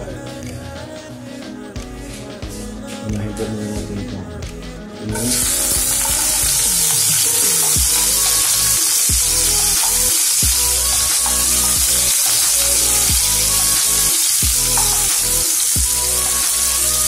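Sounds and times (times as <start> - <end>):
background music with a beat: 0.0 - 17.0
onions sizzling in a frying pan: 5.3 - 17.0.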